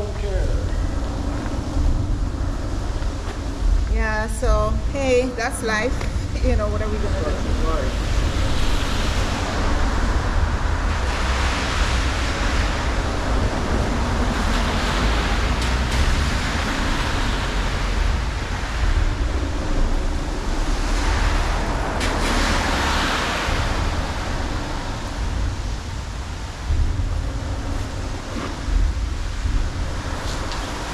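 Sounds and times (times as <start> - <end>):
low traffic rumble: 0.0 - 30.9
wind buffeting microphone: 0.0 - 30.9
tyre spray hiss on wet road: 8.0 - 26.8, 27.6 - 30.9.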